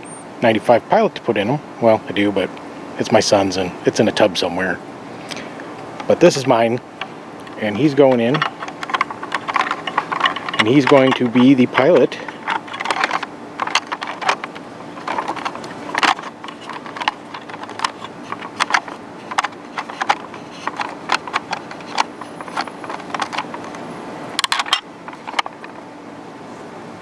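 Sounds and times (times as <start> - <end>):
plastic toy clicks and taps: 7.0 - 23.8.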